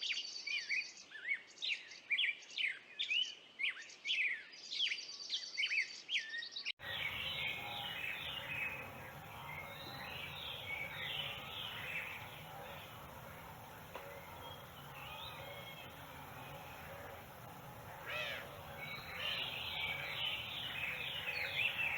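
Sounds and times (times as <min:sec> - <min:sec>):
background noise: 0:00.0 - 0:21.9
bird call notes: 0:06.8 - 0:21.9
chorus of birds chirping: 0:06.8 - 0:21.9.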